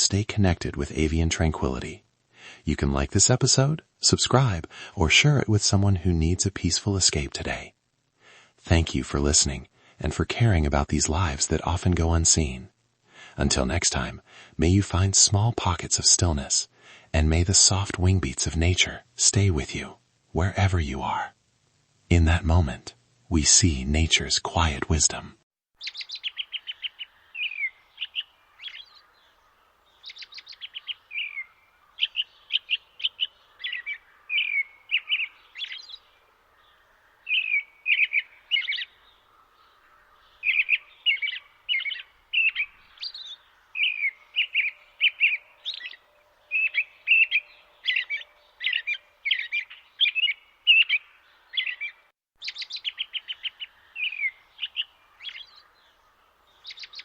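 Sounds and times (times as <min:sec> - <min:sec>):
faint steady hiss: 0:00.0 - 0:48.5
bird chirps and trills: 0:25.8 - 0:57.0.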